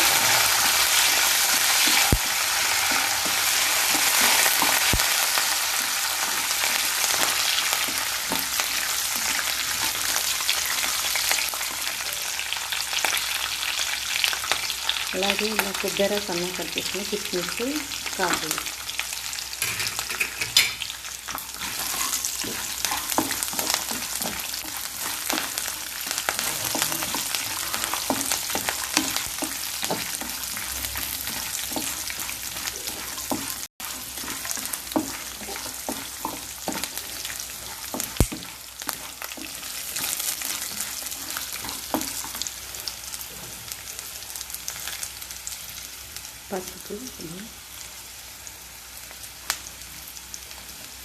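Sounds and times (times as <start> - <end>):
food sizzling in hot oil: 0.0 - 51.0
stirring scrapes and clicks: 21.3 - 42.5.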